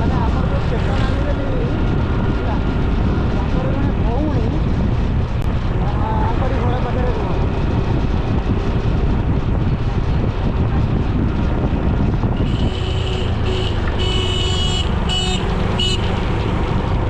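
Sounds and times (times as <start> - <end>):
road and wind rumble: 0.0 - 17.0
vehicle horn honking: 12.4 - 16.1.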